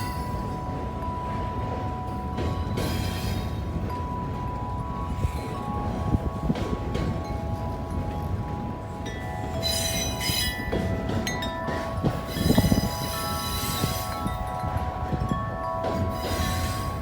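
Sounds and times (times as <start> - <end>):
freight train rumbling: 0.0 - 17.0
wind chime ringing: 3.8 - 17.0.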